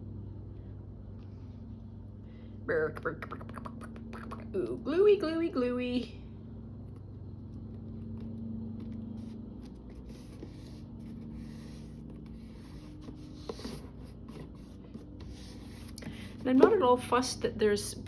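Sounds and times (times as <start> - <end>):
steady low hum: 0.0 - 18.0
paper scraping and rubbing: 7.8 - 16.7.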